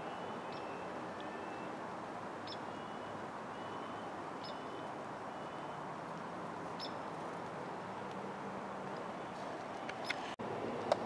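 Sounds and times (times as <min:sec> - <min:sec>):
small bird calling: 0:00.0 - 0:01.7, 0:02.4 - 0:05.8, 0:06.7 - 0:07.1, 0:09.2 - 0:10.4
outdoor background noise: 0:00.0 - 0:11.0.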